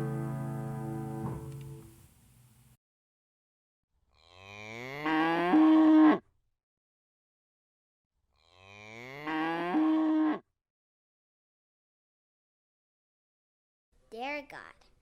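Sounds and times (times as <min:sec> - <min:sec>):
guitar music: 0:00.0 - 0:02.0
cow mooing: 0:04.4 - 0:06.2, 0:08.6 - 0:10.4.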